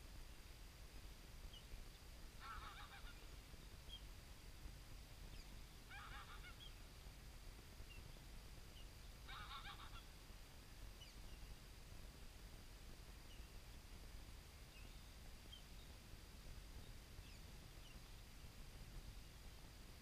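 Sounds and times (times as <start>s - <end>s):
faint bird calls chattering: 2.4s - 4.1s, 5.3s - 6.8s, 8.8s - 10.1s.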